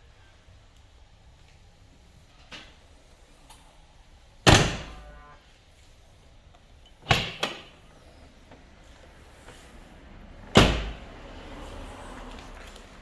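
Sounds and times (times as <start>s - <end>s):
car door slamming: 4.4s - 5.2s, 7.0s - 7.9s, 10.4s - 11.2s
car door click: 10.5s - 11.1s.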